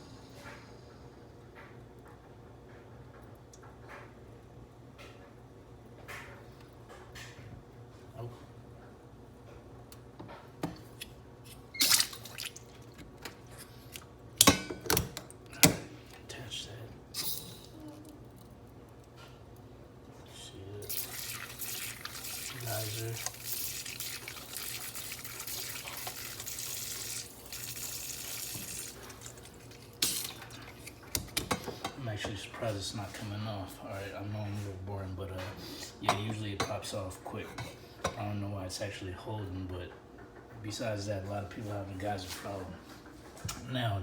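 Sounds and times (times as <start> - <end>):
short wet squish: 11.0 - 13.0
water rushing from a faucet: 20.8 - 31.3.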